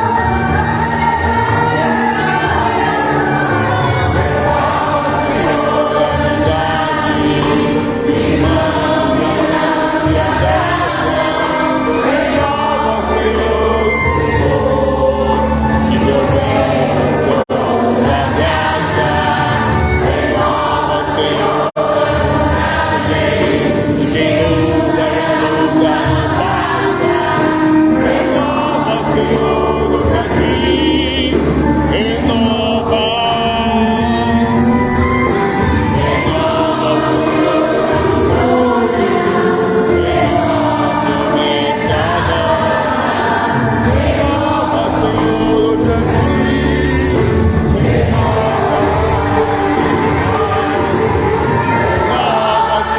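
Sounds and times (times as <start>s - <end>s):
choir singing gospel: 0.0s - 52.9s
musical accompaniment: 0.0s - 52.9s.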